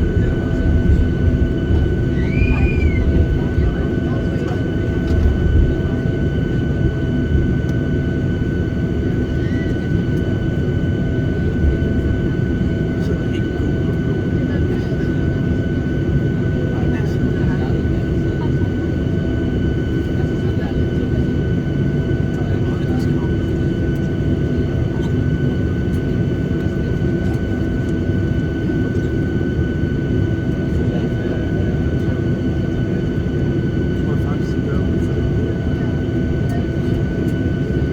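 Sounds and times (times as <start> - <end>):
jet engine rumble and whine: 0.0 - 37.9.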